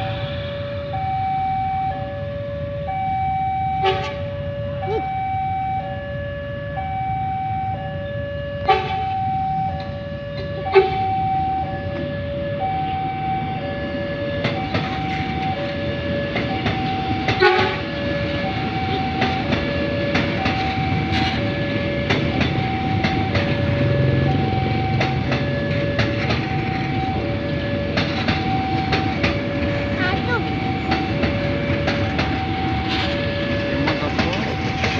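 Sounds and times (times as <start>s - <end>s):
train rumbling past: 0.0s - 34.9s
two-tone crossing alarm: 0.0s - 34.9s
wheels clacking over rail joints: 13.9s - 34.9s.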